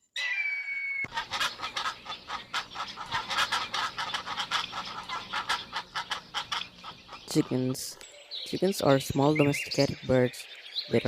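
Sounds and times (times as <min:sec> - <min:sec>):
chickens clucking: 0:01.0 - 0:08.0.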